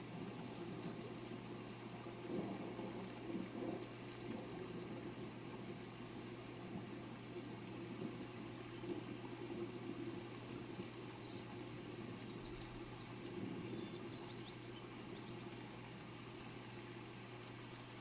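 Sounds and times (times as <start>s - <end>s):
rain hiss: 0.0s - 18.0s
birds chirping faintly: 8.4s - 16.8s.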